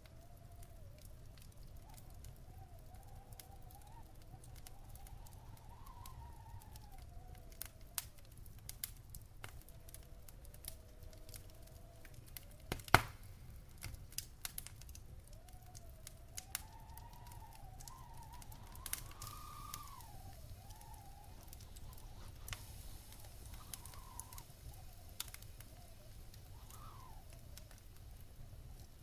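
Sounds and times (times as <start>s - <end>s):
faint wavering whistle: 0.0s - 8.2s, 15.3s - 29.0s
wood fire crackling: 0.0s - 29.0s
loud pop of fire: 12.7s - 14.6s.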